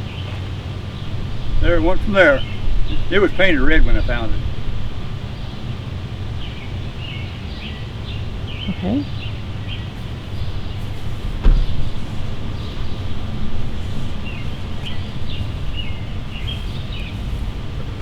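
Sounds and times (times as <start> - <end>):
small birds chirping: 0.0 - 18.0
steady low rumble: 0.0 - 18.0
single knock: 11.2 - 11.9.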